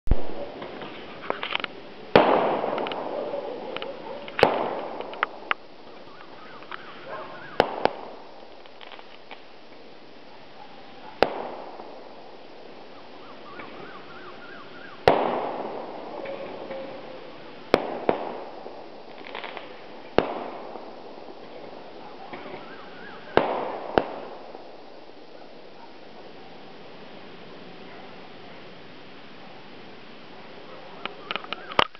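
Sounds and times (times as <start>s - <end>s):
faint fireworks crackling: 0.0s - 31.9s
fireworks bangs echoing: 0.1s - 27.0s.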